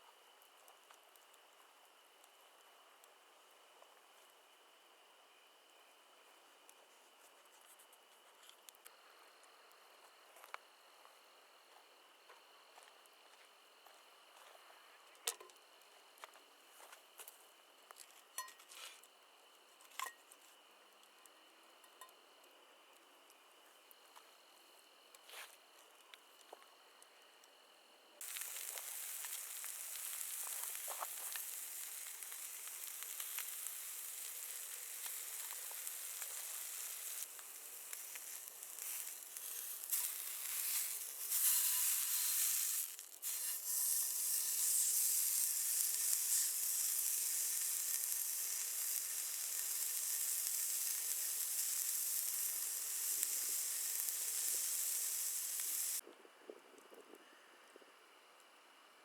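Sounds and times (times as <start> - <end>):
food sizzling in a pan: 28.2 - 56.0.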